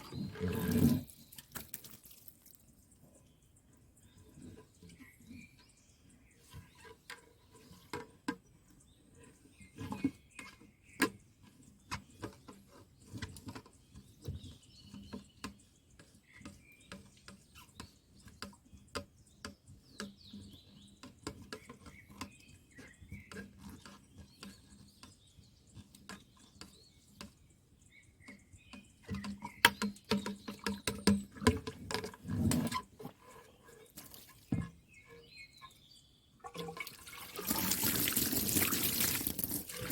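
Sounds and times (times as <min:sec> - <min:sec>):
small birds chirping: 0:00.0 - 0:39.9
clicks and knocks of handling: 0:28.2 - 0:33.2.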